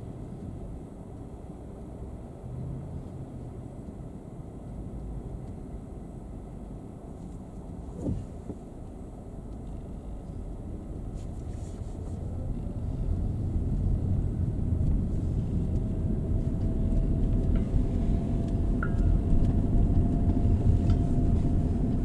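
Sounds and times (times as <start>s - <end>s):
road and engine noise in car: 0.0s - 22.0s
faint whine: 7.2s - 22.0s.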